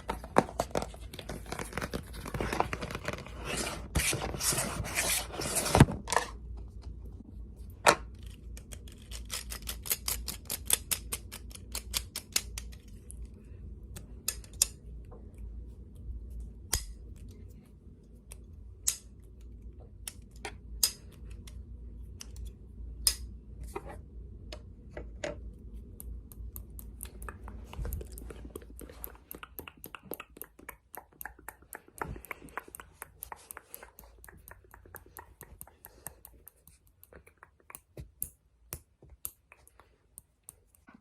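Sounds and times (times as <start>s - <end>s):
clicks and taps on objects: 25.9s - 41.0s.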